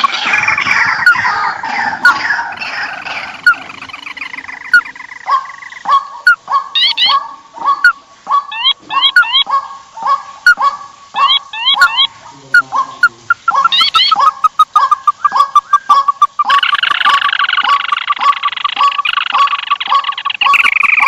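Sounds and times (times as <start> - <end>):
birds calling: 0.0 - 21.0.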